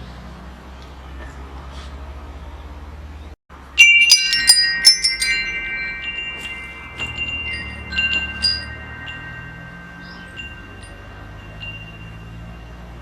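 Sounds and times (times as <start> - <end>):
metal wind chime ringing: 3.6 - 13.0.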